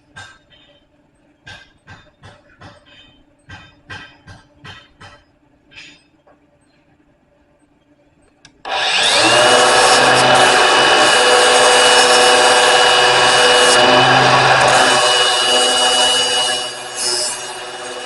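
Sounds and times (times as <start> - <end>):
electric grinder grinding: 8.6 - 18.0.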